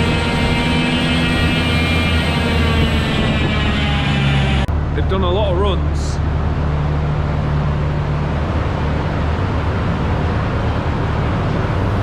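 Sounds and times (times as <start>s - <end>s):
race car engine running: 0.0s - 4.7s.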